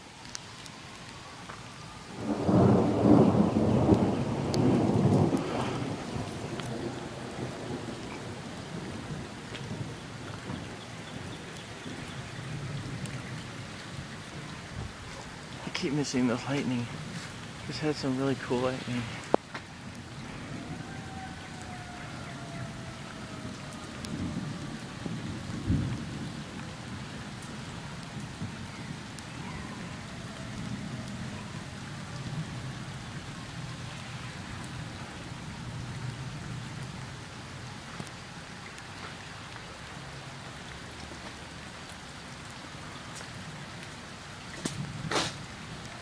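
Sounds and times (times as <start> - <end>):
rain pouring: 0.0 - 46.0
thunder rumbling: 2.0 - 38.1.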